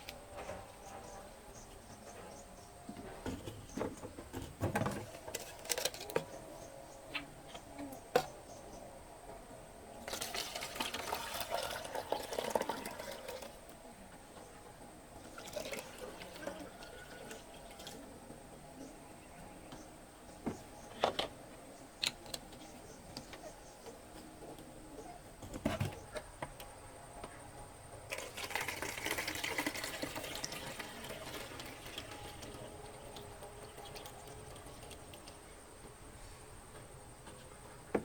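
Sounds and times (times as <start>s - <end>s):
liquid pouring and splashing: 10.1s - 13.6s, 28.1s - 35.3s.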